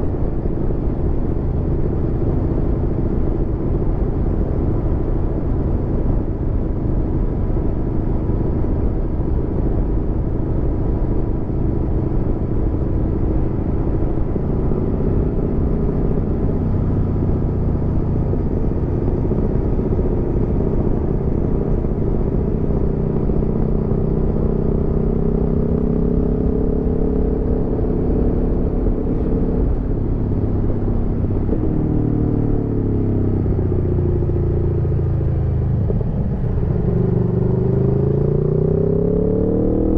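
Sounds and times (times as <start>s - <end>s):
road noise: 0.0s - 39.9s
motorcycle engine running: 11.4s - 39.9s.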